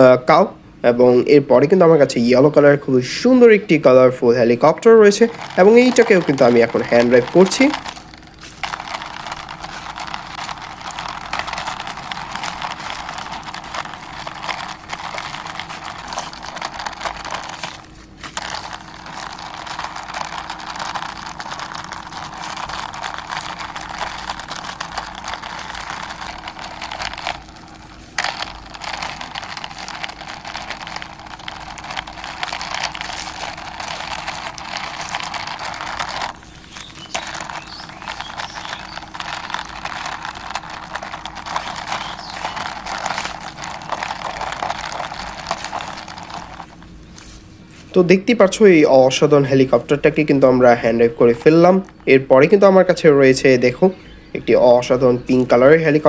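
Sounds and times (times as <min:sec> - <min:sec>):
toy scraping along a surface: 0:05.1 - 0:47.4.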